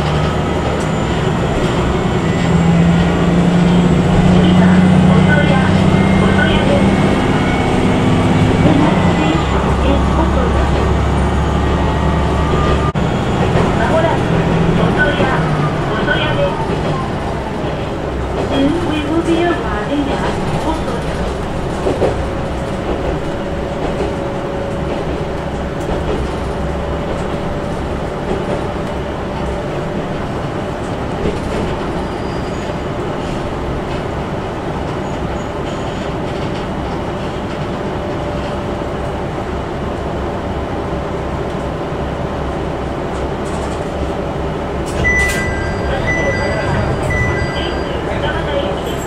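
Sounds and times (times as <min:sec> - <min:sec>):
railcar engine and wheels rumbling: 0:00.0 - 0:49.0
short high beeps: 0:45.0 - 0:48.2.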